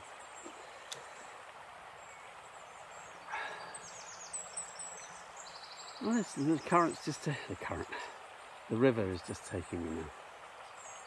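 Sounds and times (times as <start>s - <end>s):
faint steady hiss: 0.0s - 11.0s
small birds chirping: 0.0s - 11.0s
soft rush of noise: 0.0s - 11.0s.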